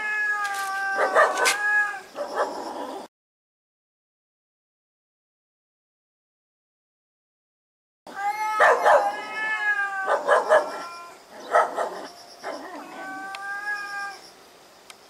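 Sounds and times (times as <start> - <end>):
cats yowling: 0.0 - 3.1, 8.1 - 14.2.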